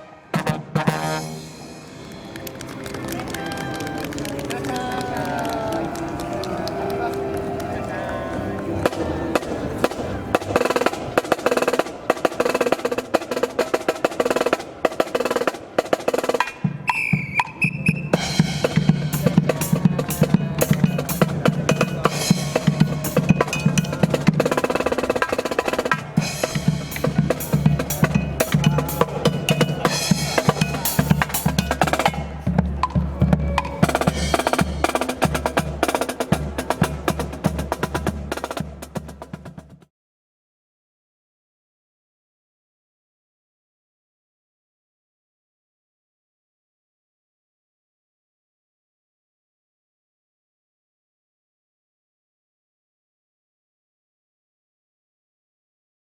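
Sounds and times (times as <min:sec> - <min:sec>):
snare drum rolls: 0:08.9 - 0:39.9
bass drum beats: 0:26.2 - 0:35.8.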